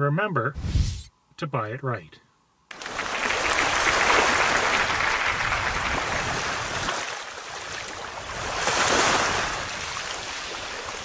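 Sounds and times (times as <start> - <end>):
loud rushing water: 2.7 - 11.0.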